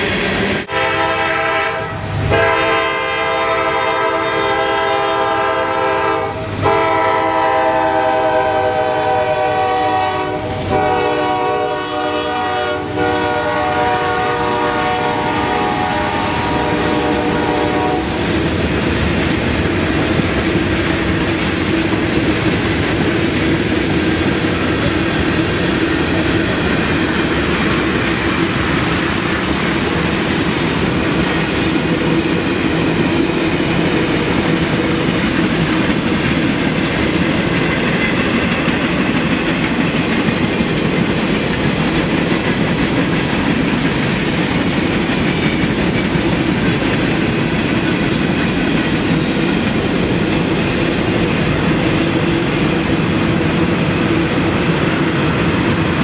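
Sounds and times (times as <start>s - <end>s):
locomotive air horn blasts: 0.7s - 18.2s
train wheels clattering over rail joints: 17.8s - 56.0s.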